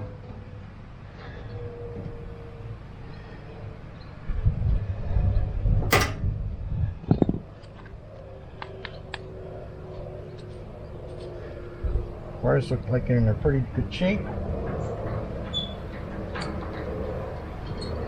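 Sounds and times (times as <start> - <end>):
sharp click: 5.9 - 6.3.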